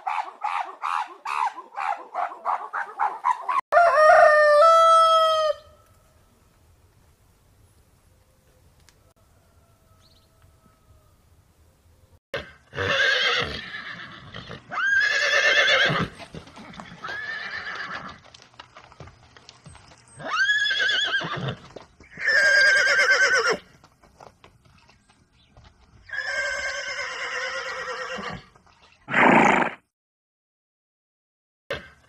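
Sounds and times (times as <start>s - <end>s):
horses whinnying: 12.4s - 18.2s, 20.2s - 23.7s, 26.1s - 28.5s, 29.1s - 29.8s.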